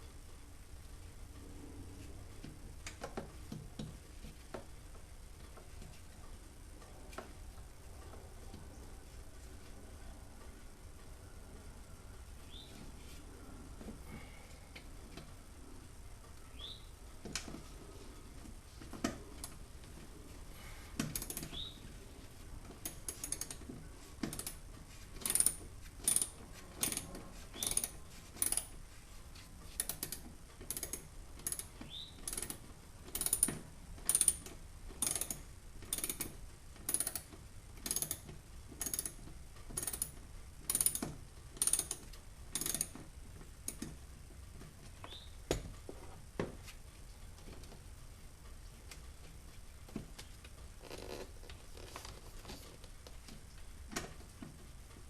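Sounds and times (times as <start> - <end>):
hand ratchet clicking: 21.0 - 21.6, 22.8 - 23.6, 24.2 - 24.6, 25.2 - 28.8, 29.8 - 43.0, 43.6 - 44.0.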